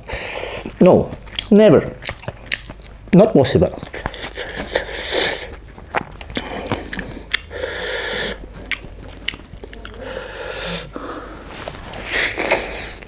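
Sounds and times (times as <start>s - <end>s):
wet chewing mouth sounds: 0.0s - 13.0s
short breaths: 6.4s - 8.4s.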